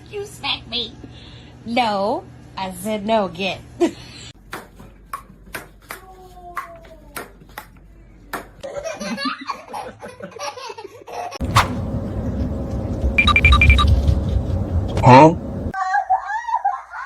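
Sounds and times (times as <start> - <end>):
noisy background: 11.4 - 15.8.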